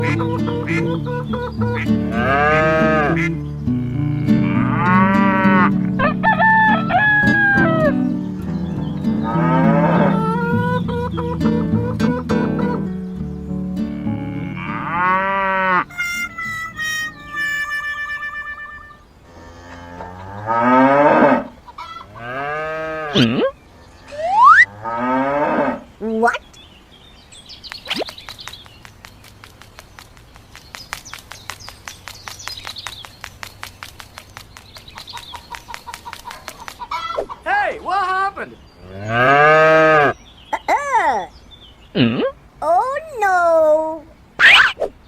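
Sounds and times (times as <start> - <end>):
higher stepped animal call: 0.0 - 13.0, 13.9 - 19.1, 21.0 - 25.8
background music: 0.0 - 15.3
cow mooing: 2.0 - 6.2, 7.6 - 10.5, 13.8 - 15.9, 22.1 - 23.4, 38.8 - 40.2.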